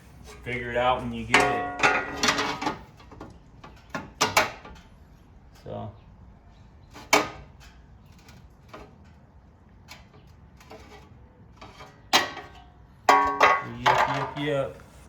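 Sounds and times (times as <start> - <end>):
hand tools knocking: 1.0 - 2.6.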